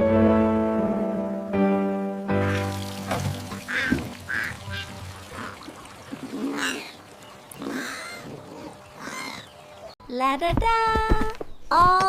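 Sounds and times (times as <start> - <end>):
duck quacking: 3.7 - 5.6.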